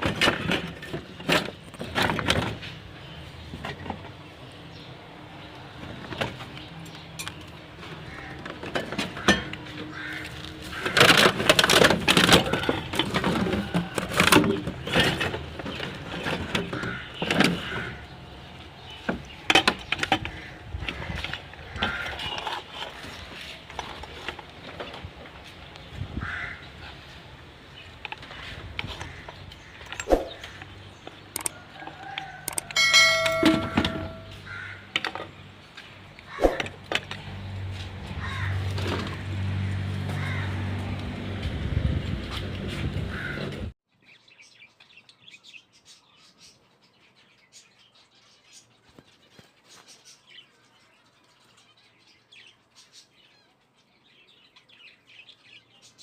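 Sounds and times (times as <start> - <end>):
small hard objects clicking: 31.3 - 31.6, 32.4 - 32.8.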